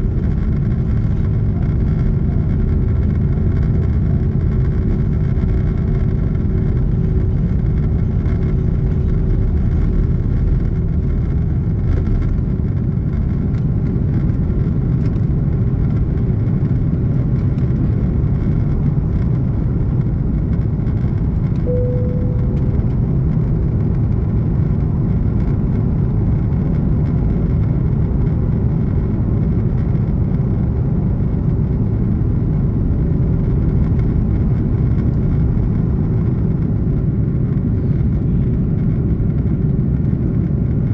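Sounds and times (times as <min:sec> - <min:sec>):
airliner cabin engine rush: 0:00.0 - 0:40.9
short soft tone: 0:21.6 - 0:23.9.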